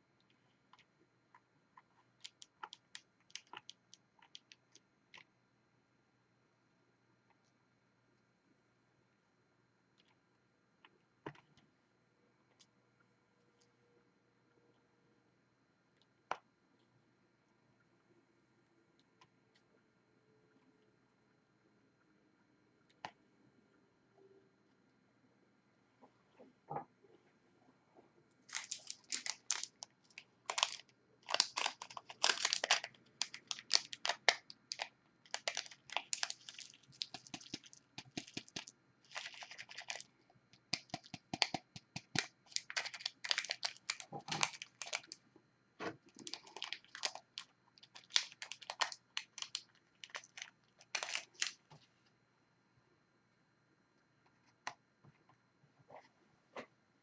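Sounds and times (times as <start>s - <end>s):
small sharp clicks and crinkles: 0.2s - 5.4s, 28.4s - 45.2s, 45.8s - 52.2s.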